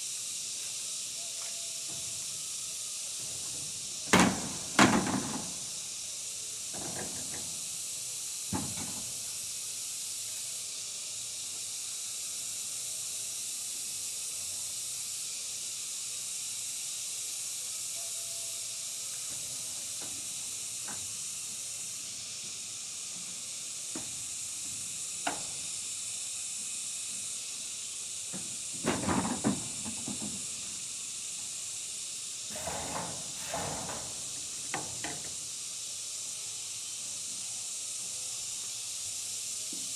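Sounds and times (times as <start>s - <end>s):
steady high hiss: 0.0s - 39.9s.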